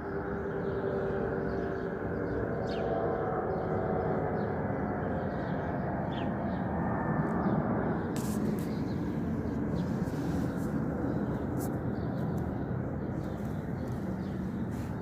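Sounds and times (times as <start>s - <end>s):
faint engine whine: 0.0s - 15.0s
jet engines rumbling: 0.0s - 15.0s
high hiss: 8.2s - 9.0s.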